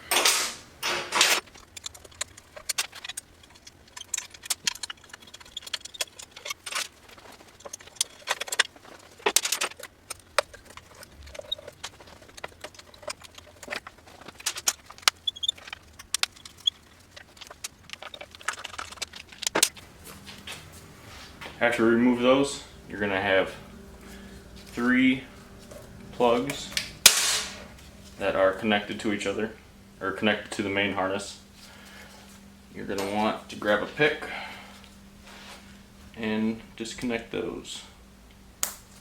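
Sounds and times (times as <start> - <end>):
metallic clicks and rattles of tools: 0.1 - 19.8.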